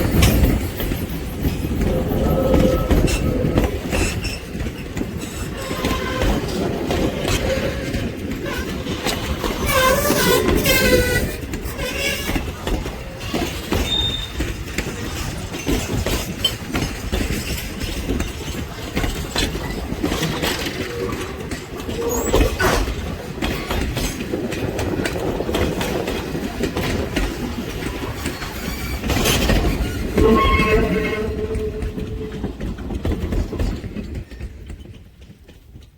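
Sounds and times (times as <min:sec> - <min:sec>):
train wheels clicking over rail joints: 0:00.0 - 0:35.9
wheel squeal: 0:13.3 - 0:14.5, 0:20.4 - 0:22.9, 0:28.3 - 0:32.4.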